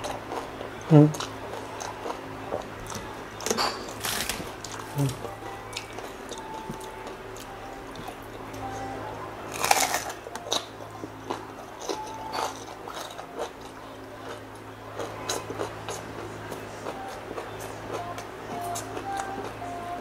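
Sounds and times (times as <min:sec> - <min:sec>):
crunching crispy food: 0:09.5 - 0:10.7.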